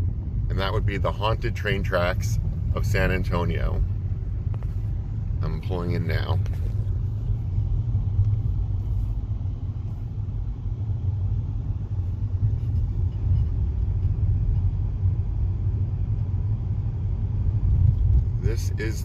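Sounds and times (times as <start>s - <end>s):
car rolling inside cabin: 0.0s - 19.0s.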